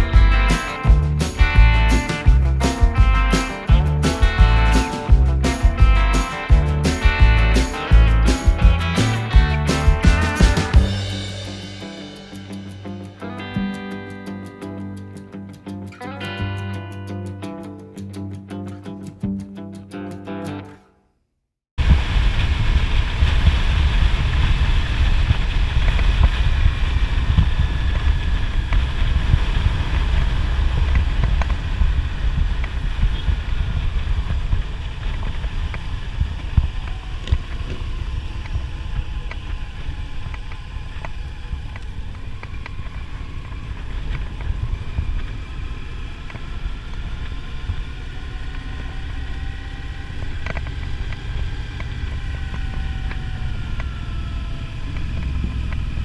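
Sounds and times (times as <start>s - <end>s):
motorcycle engine running: 0.0s - 13.9s, 44.0s - 56.0s.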